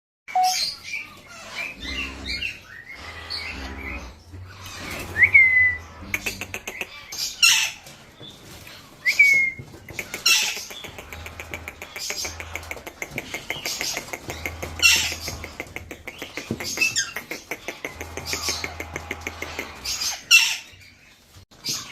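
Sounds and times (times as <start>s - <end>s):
parrots squawking: 0.4s - 8.0s, 10.0s - 21.1s
scattered clicks: 9.9s - 20.0s.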